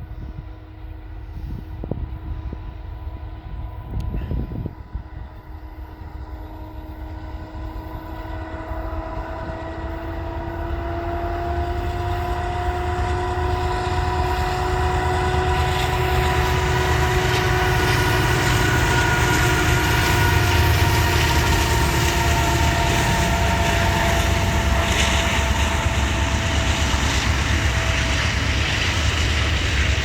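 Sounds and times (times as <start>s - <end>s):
locomotive engine rumbling: 0.0s - 30.0s
train rolling on rails: 0.0s - 30.0s
locomotive air horn blast: 6.4s - 29.3s.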